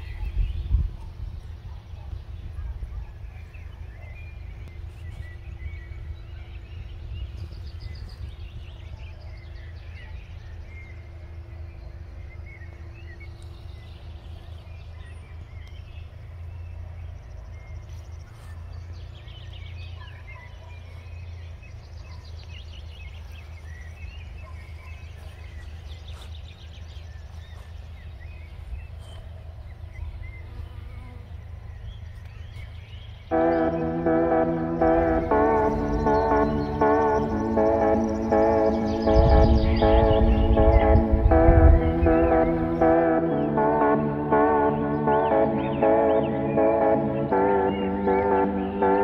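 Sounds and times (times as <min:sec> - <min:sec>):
songbirds chirping and singing: 0:00.0 - 0:49.0
steady low rumble: 0:31.5 - 0:49.0.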